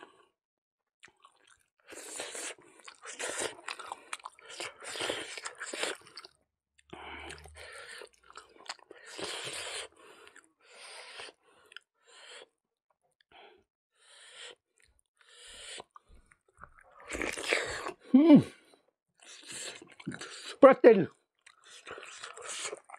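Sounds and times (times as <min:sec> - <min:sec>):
close chewing: 0:01.0 - 0:10.5, 0:11.1 - 0:11.9, 0:14.8 - 0:18.1, 0:19.2 - 0:20.6, 0:21.3 - 0:22.9.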